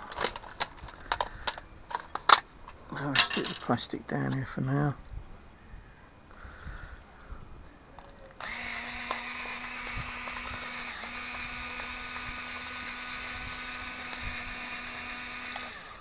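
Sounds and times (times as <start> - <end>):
small electric motor running: 8.4 - 16.0.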